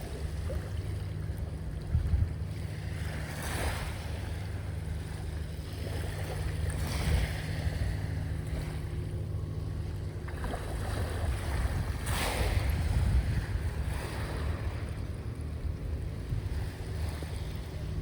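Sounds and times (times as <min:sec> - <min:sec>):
wind rumble on microphone: 0:00.0 - 0:18.0
sea waves washing on shore: 0:10.2 - 0:18.0.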